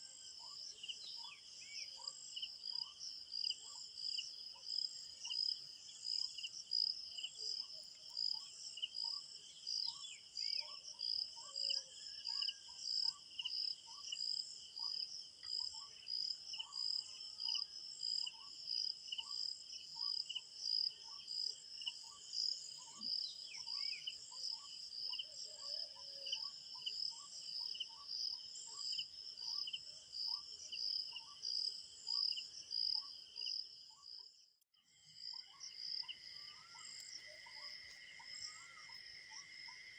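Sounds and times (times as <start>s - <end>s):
crickets chirping in fast trill: 34.9s - 39.9s.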